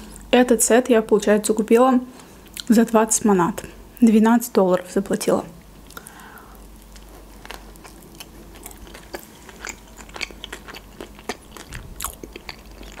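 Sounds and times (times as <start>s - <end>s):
person chewing: 5.8s - 13.0s.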